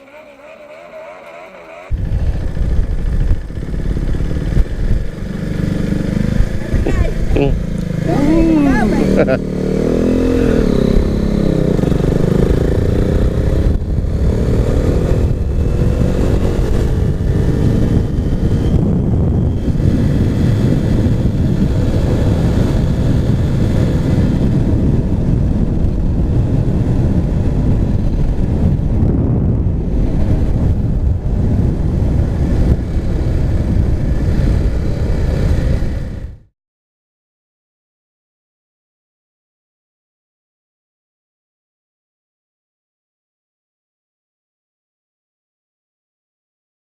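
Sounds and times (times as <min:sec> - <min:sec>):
motorcycle engine rumble: 0:00.0 - 0:36.5.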